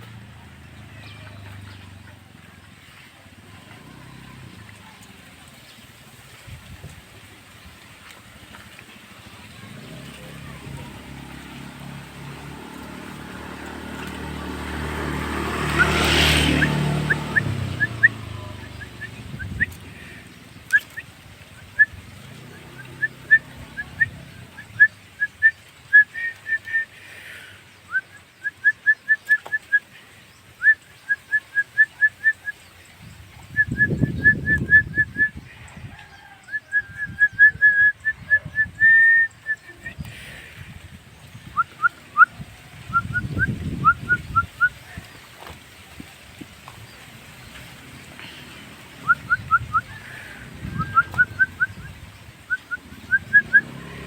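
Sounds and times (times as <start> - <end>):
bird singing whistled notes: 15.6 - 19.9, 20.5 - 27.0, 27.8 - 29.9, 30.5 - 35.5, 36.3 - 40.1, 41.3 - 45.0, 49.0 - 53.9.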